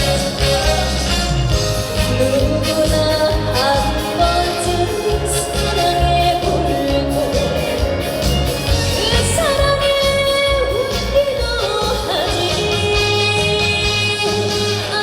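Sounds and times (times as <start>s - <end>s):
backing track with bass beat: 0.0s - 14.2s
woman singing with vibrato: 0.0s - 15.0s.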